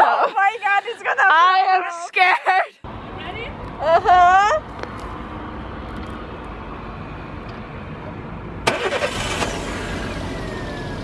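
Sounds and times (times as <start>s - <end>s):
car engine cranking and starting: 8.6s - 11.0s.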